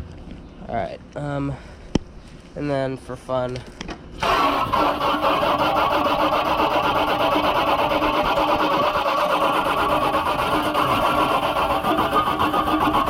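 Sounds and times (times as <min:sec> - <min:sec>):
faint hum: 0:00.0 - 0:08.9
hose spraying onto fan blades: 0:04.2 - 0:13.0.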